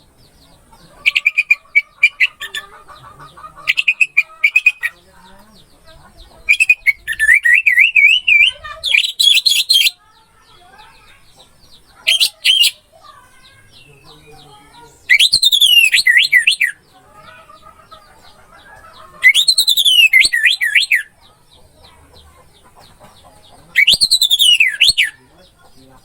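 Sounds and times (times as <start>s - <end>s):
thrush singing whistled phrase: 6.5s - 9.9s, 12.1s - 12.8s, 15.1s - 16.8s, 19.2s - 21.1s, 23.8s - 25.2s.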